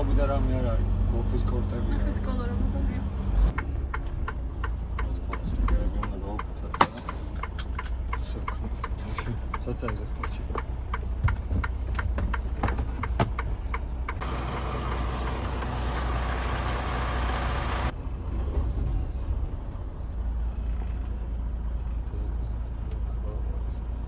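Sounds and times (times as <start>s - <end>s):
truck engine drone: 0.0s - 23.6s.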